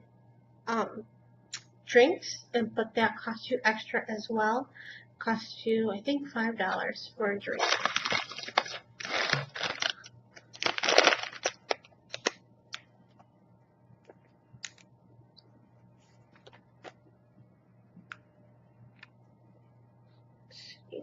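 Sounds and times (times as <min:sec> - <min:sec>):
plastic snack packaging crinkling: 0:07.5 - 0:12.4.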